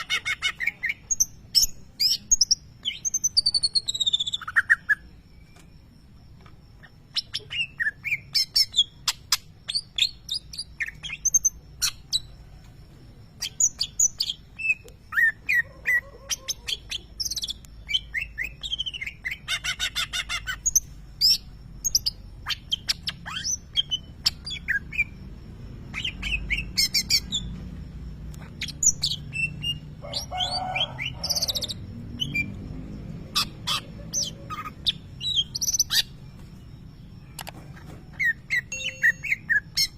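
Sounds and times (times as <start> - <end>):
bird chirping and whistling: 0.0 - 5.7, 7.1 - 12.3, 16.6 - 25.2, 25.9 - 27.5, 28.5 - 32.6, 33.3 - 36.2, 37.3 - 39.9
bird rapid trill: 28.4 - 32.6, 33.2 - 39.9.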